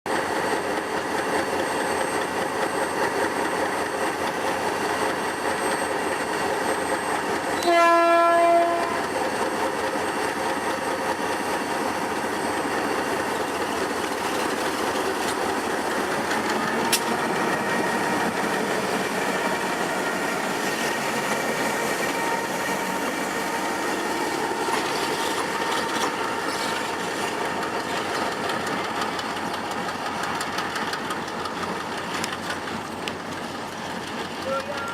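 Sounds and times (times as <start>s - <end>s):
diesel locomotive running: 0.1s - 34.9s
locomotive horn blast: 7.6s - 9.1s
sharp click: 16.8s - 17.1s.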